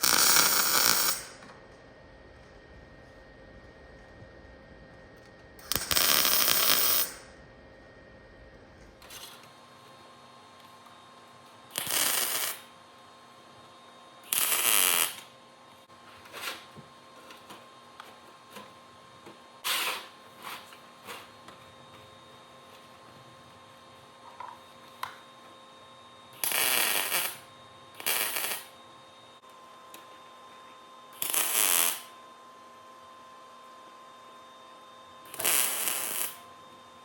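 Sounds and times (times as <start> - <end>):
loud metal fabrication bursts: 0.0 - 1.4, 5.6 - 7.2, 11.8 - 12.6.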